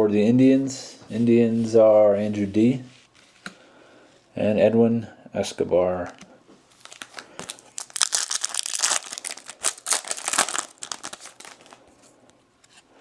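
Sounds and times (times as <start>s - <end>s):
foil wrapper crinkling and tearing: 6.7s - 11.9s.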